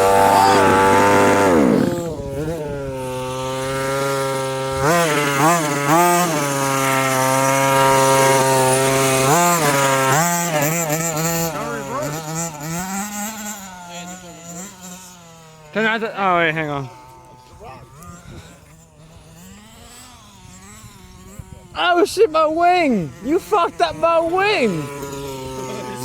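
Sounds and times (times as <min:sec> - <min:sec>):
small two-stroke engine idling and revving: 0:00.0 - 0:26.0.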